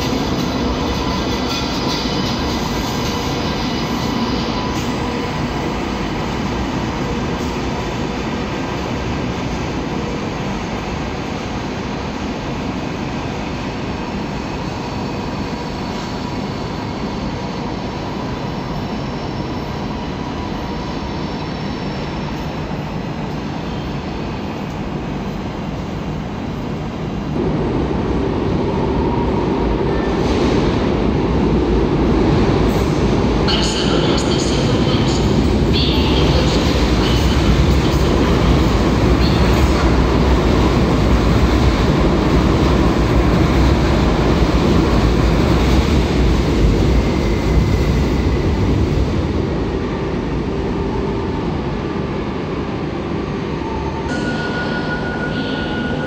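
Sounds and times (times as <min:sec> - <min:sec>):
commuter train approaching: 0:00.0 - 0:56.0
train rolling rumble: 0:00.0 - 0:56.0.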